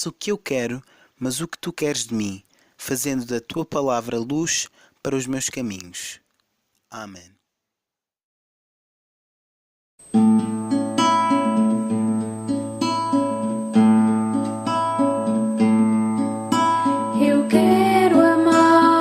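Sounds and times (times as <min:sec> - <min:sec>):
acoustic guitar strumming: 0:10.0 - 0:19.0
person singing: 0:17.0 - 0:19.0.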